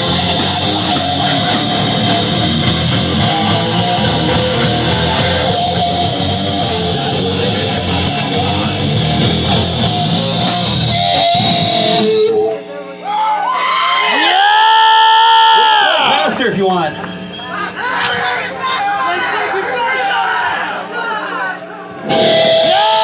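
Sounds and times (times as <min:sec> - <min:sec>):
bass: 0:00.0 - 0:12.6, 0:22.0 - 0:23.0
drums: 0:00.0 - 0:12.6, 0:22.0 - 0:23.0
distorted electric guitar: 0:00.0 - 0:12.7, 0:21.9 - 0:23.0.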